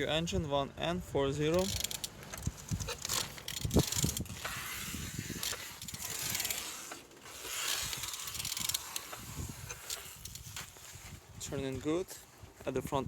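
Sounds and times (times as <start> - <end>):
engine turned by hand whirring: 1.4 - 11.1.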